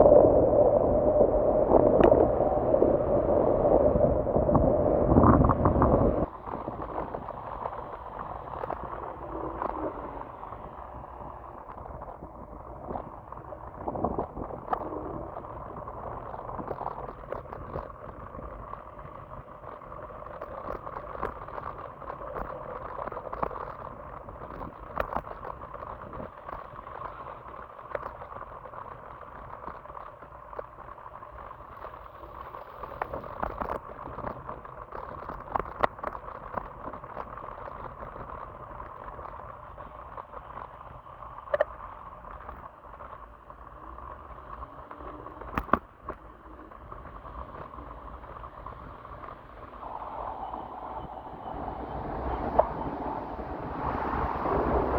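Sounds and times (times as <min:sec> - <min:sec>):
tyres on wet road: 0:49.8 - 0:54.9.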